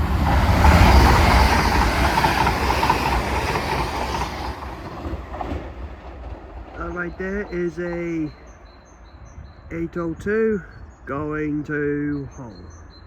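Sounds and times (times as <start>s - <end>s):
train passing at speed: 0.0s - 10.2s.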